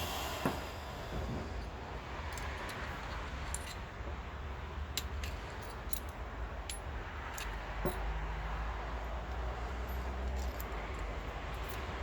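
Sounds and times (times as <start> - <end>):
metal parts and tools clinking: 2.3 - 3.8, 5.0 - 8.0, 9.9 - 11.9.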